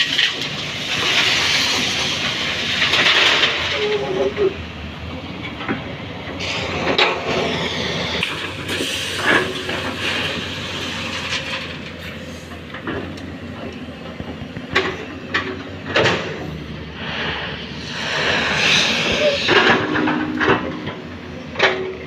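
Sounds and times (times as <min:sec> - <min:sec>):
diesel engine running: 0:00.0 - 0:22.0
metallic clanks of bucket on truck: 0:08.2 - 0:16.6, 0:19.1 - 0:22.0.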